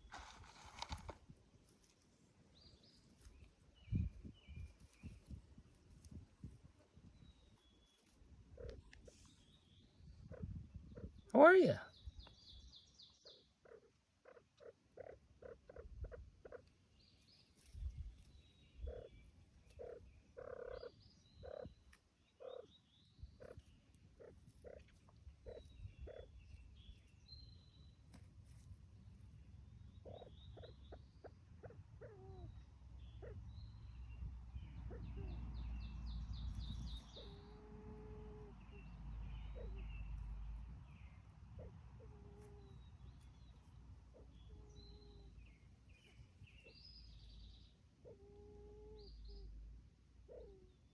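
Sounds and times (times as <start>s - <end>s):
small birds chirping: 0.0s - 50.9s
grouse clucking: 7.9s - 9.4s, 10.2s - 11.8s, 13.3s - 16.9s, 17.5s - 22.7s, 23.4s - 27.2s, 28.0s - 33.5s, 36.5s - 45.4s.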